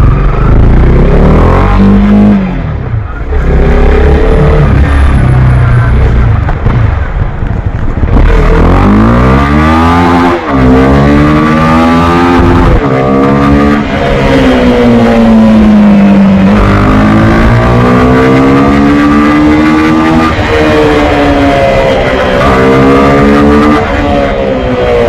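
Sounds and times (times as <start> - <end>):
motorcycle engine revving: 8.1 - 25.0.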